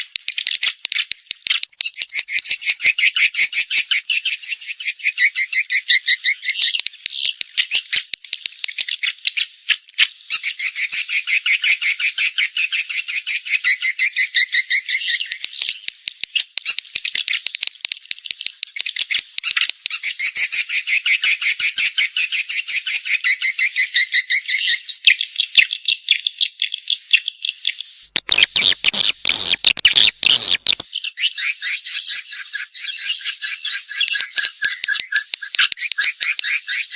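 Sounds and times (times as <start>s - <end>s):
swiftlets twittering chirps: 28.1s - 32.1s, 32.8s - 36.9s.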